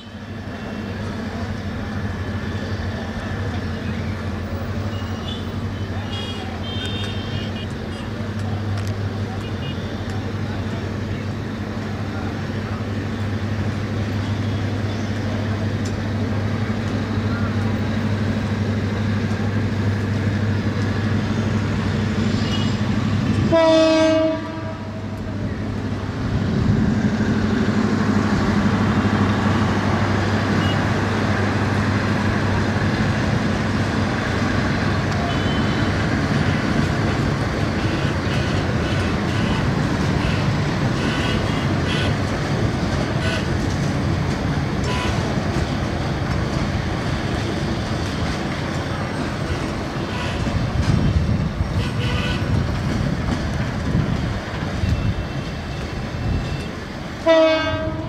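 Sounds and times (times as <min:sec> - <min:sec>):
train coaches rumbling past: 0:00.0 - 0:58.0
diesel locomotive horn blast: 0:04.8 - 0:08.2, 0:21.5 - 0:25.2, 0:35.0 - 0:42.3, 0:43.0 - 0:43.7, 0:44.8 - 0:45.4, 0:49.2 - 0:50.7, 0:51.6 - 0:52.7, 0:54.8 - 0:58.0.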